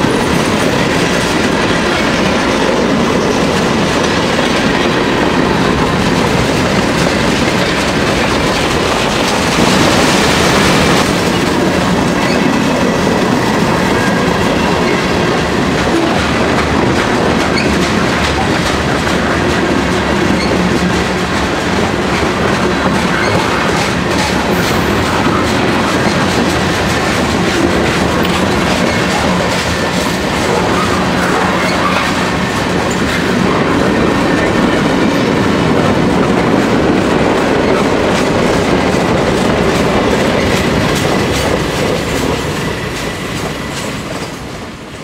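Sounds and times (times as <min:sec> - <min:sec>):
freight cars clacking and knocking: 0:00.0 - 0:45.0
steel wheels clattering on rails: 0:00.0 - 0:45.0.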